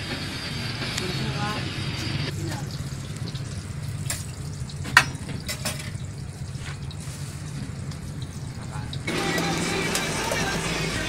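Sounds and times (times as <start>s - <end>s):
food sizzling in oil: 0.2s - 11.0s.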